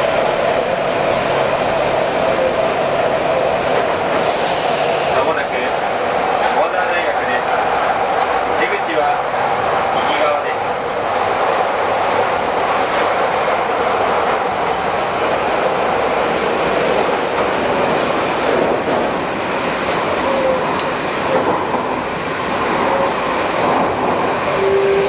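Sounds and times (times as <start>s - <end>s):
train wheel and rail noise: 0.0s - 25.0s
rail-joint clatter: 16.9s - 25.0s.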